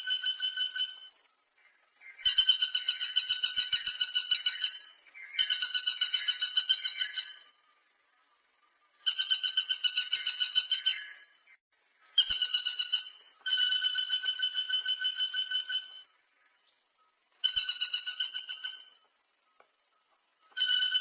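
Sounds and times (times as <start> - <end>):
woodpecker rattling calls: 0.0 - 7.6, 8.9 - 21.0.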